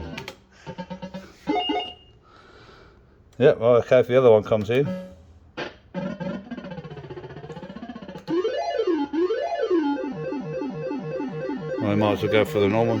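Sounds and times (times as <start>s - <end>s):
fruit machine electronic sounds: 4.7s - 13.0s.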